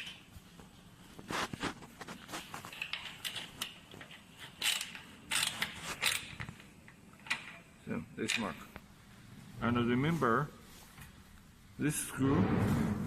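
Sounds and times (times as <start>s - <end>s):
hands handling parts: 0.0s - 8.9s.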